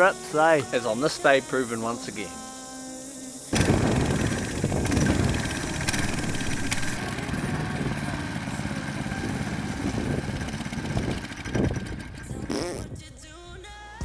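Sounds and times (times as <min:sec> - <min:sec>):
small petrol engine running: 0:03.5 - 0:12.5.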